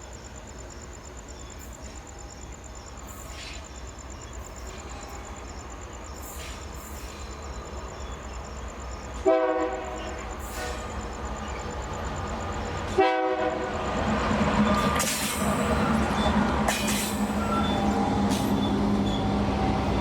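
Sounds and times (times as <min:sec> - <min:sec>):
diesel locomotive engine rumble: 0:00.3 - 0:20.0
locomotive air horn blast: 0:09.2 - 0:09.9, 0:13.0 - 0:13.7.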